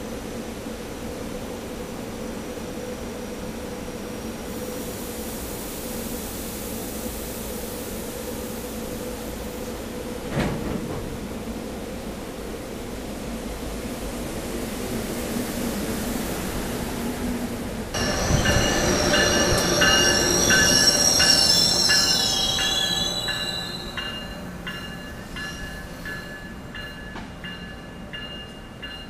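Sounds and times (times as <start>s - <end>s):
high-pitched wheel squeal: 18.0s - 24.5s.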